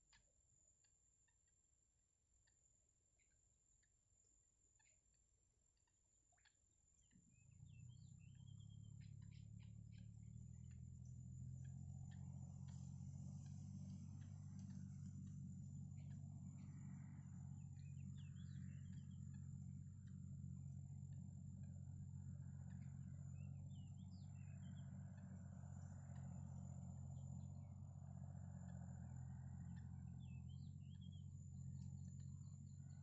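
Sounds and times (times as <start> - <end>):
constant high whine: 0.0 - 33.0
faint bird chirps: 0.0 - 33.0
steady low hum: 7.0 - 33.0.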